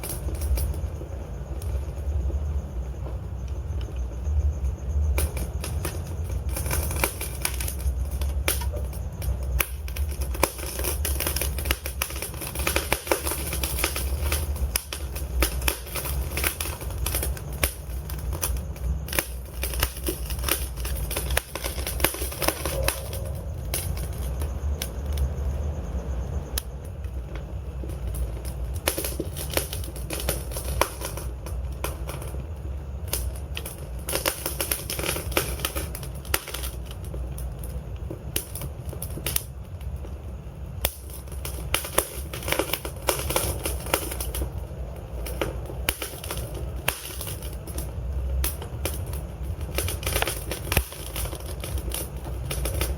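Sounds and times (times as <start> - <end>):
wood fire crackling: 0.0 - 52.9
logs popping and snapping: 5.2 - 25.0, 45.2 - 52.9.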